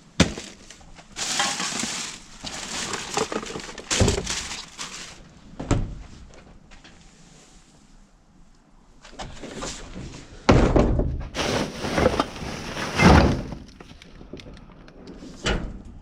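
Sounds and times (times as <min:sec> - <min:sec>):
rubbish bags crinkling: 0:00.0 - 0:05.3, 0:11.4 - 0:14.0.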